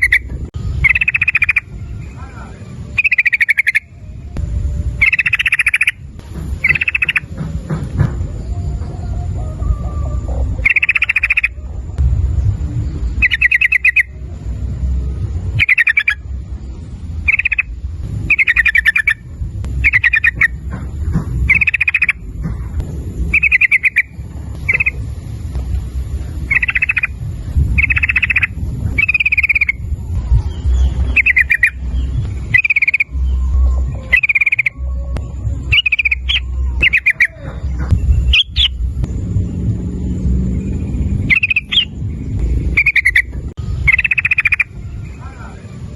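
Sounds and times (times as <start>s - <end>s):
bird chattering calls: 0.0s - 2.2s, 2.9s - 3.9s, 5.0s - 7.5s, 10.4s - 11.6s, 13.2s - 14.2s, 15.5s - 16.3s, 17.2s - 25.2s, 26.3s - 38.8s, 41.1s - 44.8s
low rumble: 0.0s - 45.9s.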